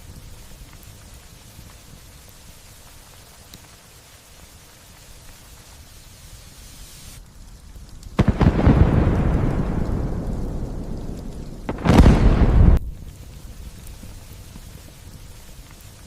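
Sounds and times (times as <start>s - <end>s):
light rain: 0.0s - 16.0s
thunderclaps: 8.2s - 13.5s.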